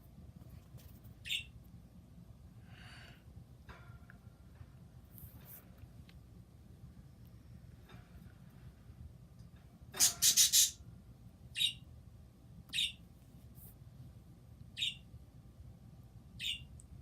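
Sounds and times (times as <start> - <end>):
pet bird high calls: 1.2 - 1.5, 10.0 - 10.8, 11.6 - 11.8, 12.7 - 13.0, 14.8 - 15.0, 16.4 - 16.7.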